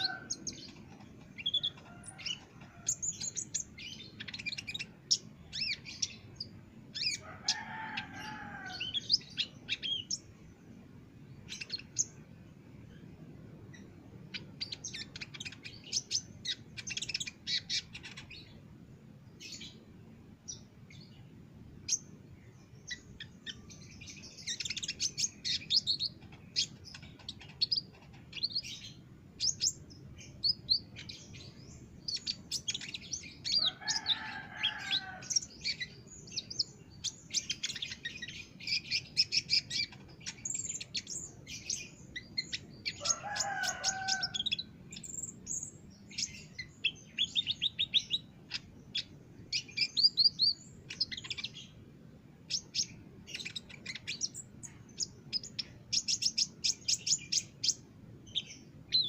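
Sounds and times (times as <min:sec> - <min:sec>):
lower bird call: 0:00.0 - 0:00.8
bird chirping and trilling: 0:00.0 - 0:10.3, 0:11.4 - 0:12.2, 0:13.7 - 0:18.6, 0:21.8 - 0:51.8, 0:52.4 - 0:59.0.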